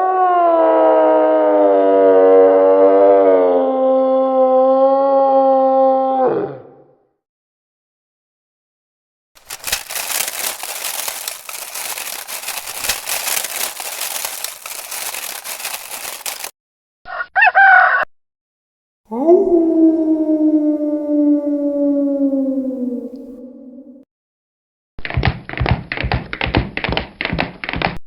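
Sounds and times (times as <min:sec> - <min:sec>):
harsh crackling noise: 0:09.4 - 0:16.5
rooster crowing: 0:17.1 - 0:18.1.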